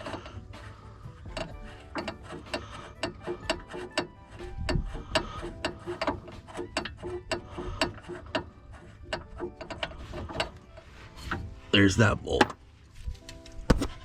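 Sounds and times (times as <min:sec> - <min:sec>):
hand ratchet clicking: 0:00.0 - 0:10.8.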